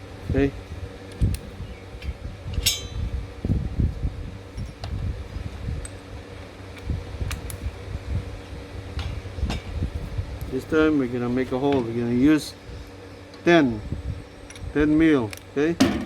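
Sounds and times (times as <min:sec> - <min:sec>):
low mechanical hum: 0:00.0 - 0:16.0
tools knocking against metal: 0:02.0 - 0:03.0.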